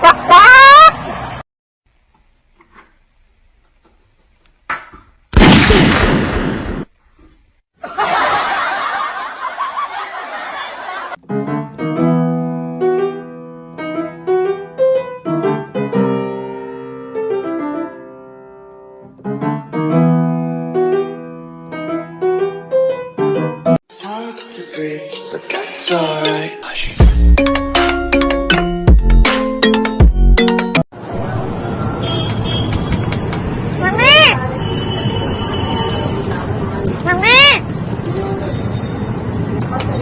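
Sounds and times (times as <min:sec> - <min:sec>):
solo piano melody: 0:11.2 - 0:23.8.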